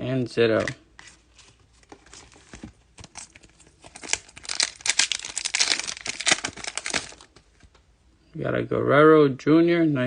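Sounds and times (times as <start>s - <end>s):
foil pack crinkling and tearing: 2.1s - 7.3s.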